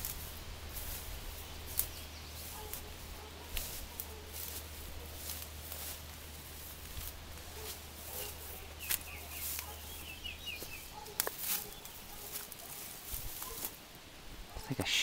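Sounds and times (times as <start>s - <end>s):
footsteps in leaf litter: 0.0s - 13.9s
small bird chirping: 7.5s - 13.8s.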